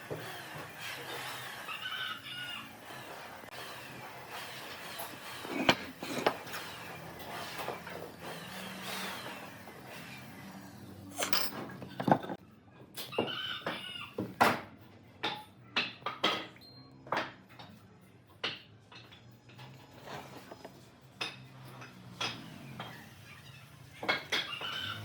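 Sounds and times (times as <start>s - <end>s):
chicken clucking: 24.3s - 25.0s.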